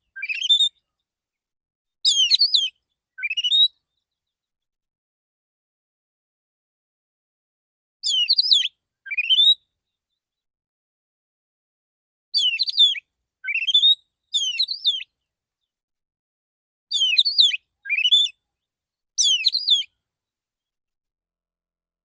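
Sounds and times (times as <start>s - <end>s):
bird whistled warbling song: 0.0s - 0.8s, 2.0s - 3.9s, 8.0s - 9.7s, 12.4s - 15.1s, 16.9s - 18.4s, 19.2s - 20.0s.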